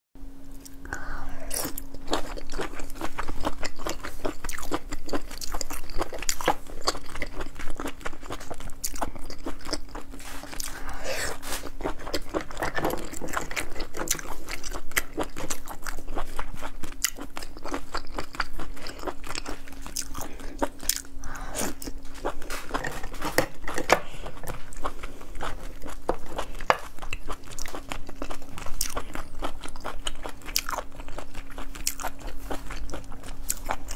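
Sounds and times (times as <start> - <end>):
faint steady hum: 0.2 - 33.9
chewing and wet mouth sounds: 0.5 - 33.9.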